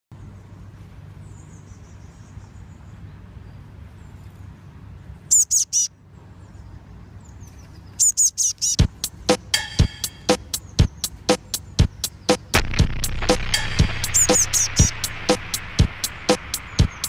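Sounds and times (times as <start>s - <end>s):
young bird chirping: 5.3s - 6.0s, 7.4s - 8.9s.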